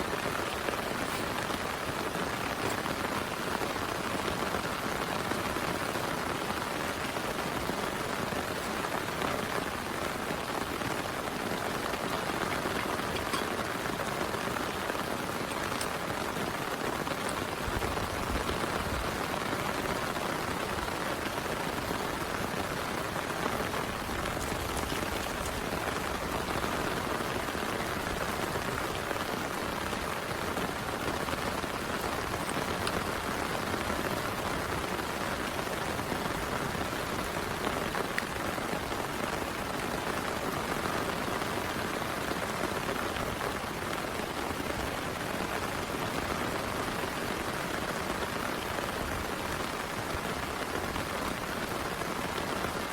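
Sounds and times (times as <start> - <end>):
raindrop ticks: 0.0 - 38.7
heavy rain falling: 0.0 - 52.9.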